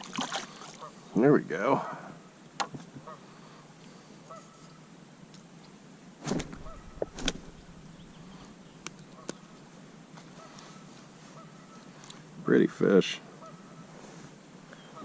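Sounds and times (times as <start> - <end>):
brief thumps: 6.2 - 8.1
geese honking: 6.6 - 7.2, 10.4 - 11.9, 13.4 - 13.9.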